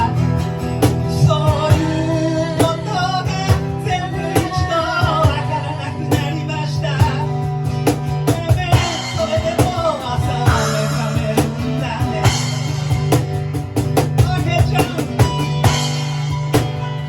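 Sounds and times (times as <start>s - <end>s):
live rock band playing: 0.0s - 17.0s
drum kit hits: 7.8s - 17.0s.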